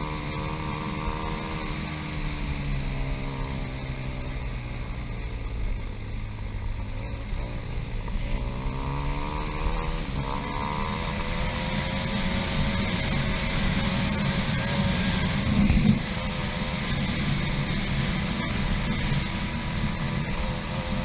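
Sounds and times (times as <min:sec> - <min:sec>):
dirt bike engine revving: 0:00.0 - 0:04.9, 0:06.9 - 0:21.0
wind rush: 0:10.0 - 0:21.0.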